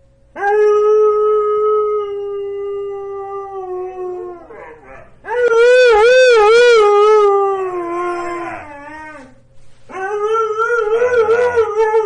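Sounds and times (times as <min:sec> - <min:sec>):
dog howling: 0:00.4 - 0:12.0.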